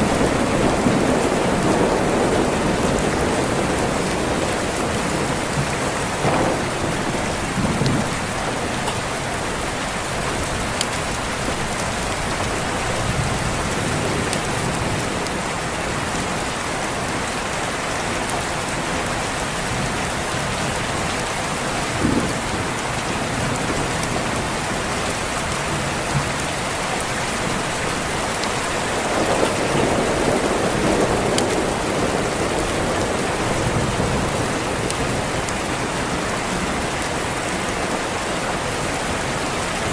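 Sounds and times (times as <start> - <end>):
distant thunder rumbling: 0.0 - 16.4, 21.8 - 38.0
steady rain: 0.0 - 39.9.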